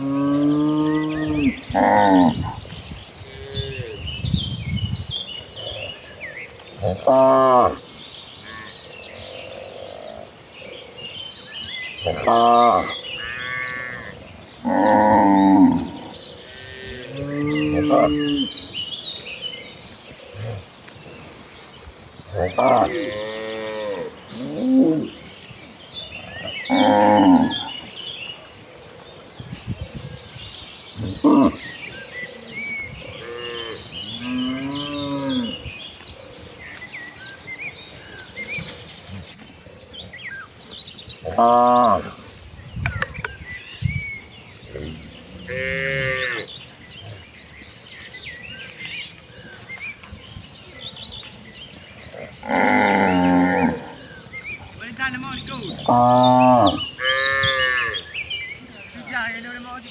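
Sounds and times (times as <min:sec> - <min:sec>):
cattle mooing: 0:12.0 - 0:18.5, 0:22.4 - 0:25.2, 0:44.7 - 0:46.5, 0:52.2 - 0:54.0.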